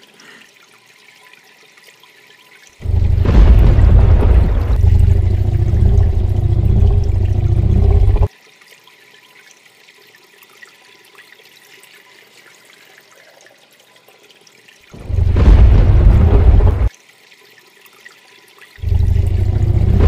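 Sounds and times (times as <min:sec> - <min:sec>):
loud rushing water: 0:02.8 - 0:08.3, 0:14.9 - 0:16.9, 0:18.8 - 0:20.0.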